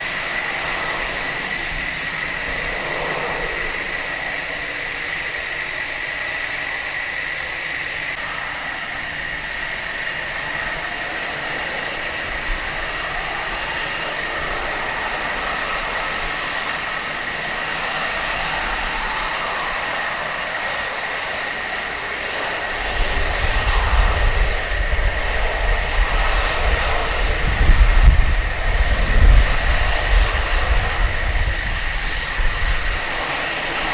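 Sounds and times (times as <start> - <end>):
jet engines whining: 0.0 - 33.9
heavy low rumble: 21.7 - 33.9.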